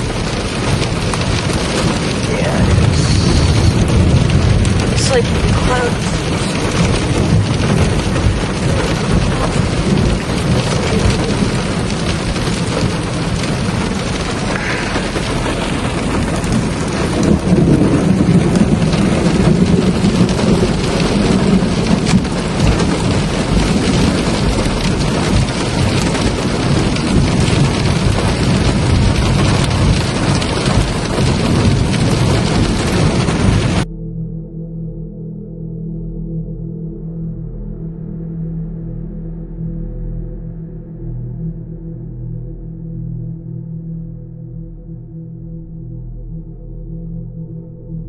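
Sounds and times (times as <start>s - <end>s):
heavy rain falling: 0.0s - 33.9s
rolling thunder: 0.0s - 34.0s.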